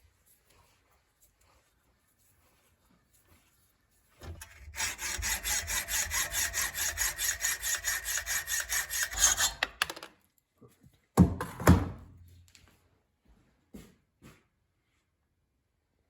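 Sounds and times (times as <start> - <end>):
hand tool rasping wood: 4.2 - 9.9.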